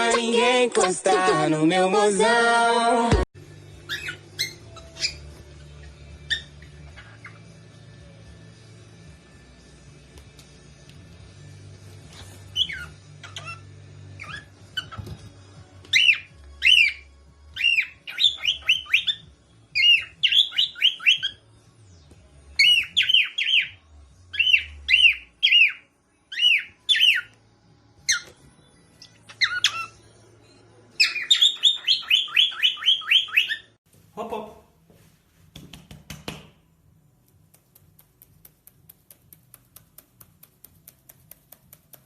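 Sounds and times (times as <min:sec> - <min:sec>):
parrot chirping: 0:03.7 - 0:07.6, 0:12.2 - 0:15.1, 0:15.9 - 0:21.4, 0:22.6 - 0:27.3, 0:28.0 - 0:30.2, 0:31.0 - 0:33.8.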